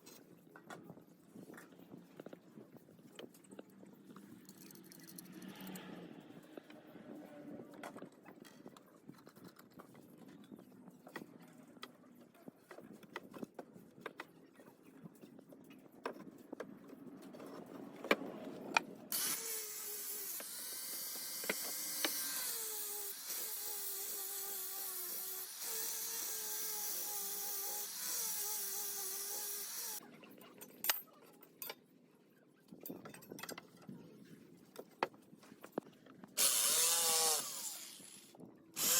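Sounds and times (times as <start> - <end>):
electric power tool running: 19.1 - 30.0, 36.4 - 38.9.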